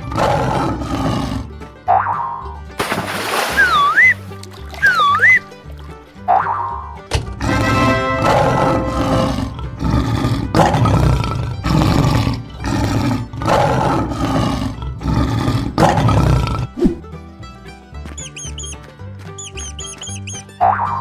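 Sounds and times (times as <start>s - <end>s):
lion roaring: 0.0s - 1.6s, 7.4s - 17.0s
light children's music: 1.0s - 10.0s, 16.8s - 21.0s.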